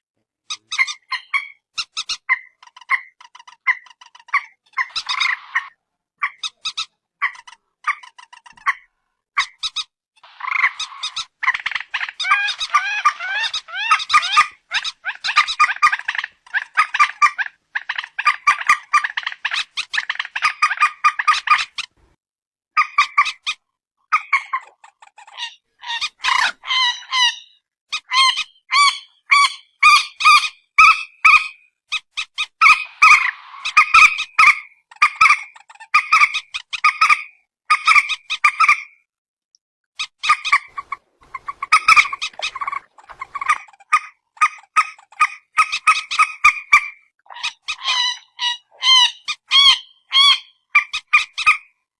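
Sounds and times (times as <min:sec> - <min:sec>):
bird honking calls: 0:40.2 - 0:51.0.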